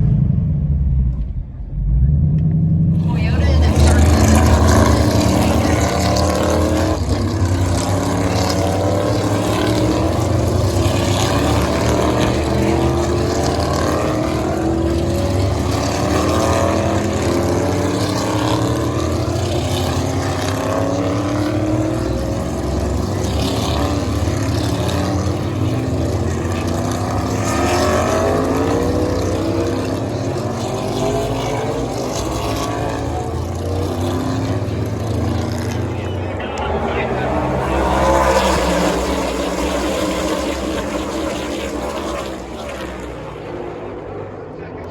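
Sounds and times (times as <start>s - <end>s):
road noise inside car: 0.0s - 43.4s
car engine drone: 0.0s - 44.9s.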